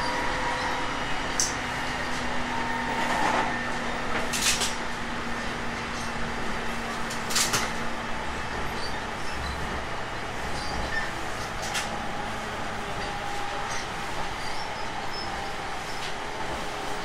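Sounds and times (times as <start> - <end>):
electric train hum: 0.0 - 17.0.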